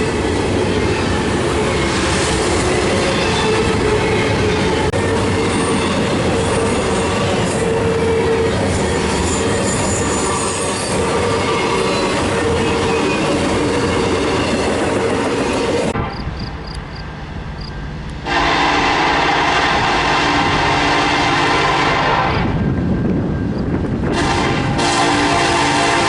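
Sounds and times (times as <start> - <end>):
train horn: 18.2 - 22.6, 24.0 - 26.0.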